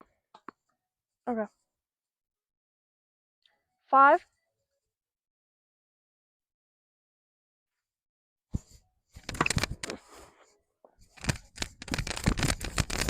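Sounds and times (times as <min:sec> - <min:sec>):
clip-on microphone rubbing on clothing: 0:08.6 - 0:10.4, 0:11.0 - 0:13.0.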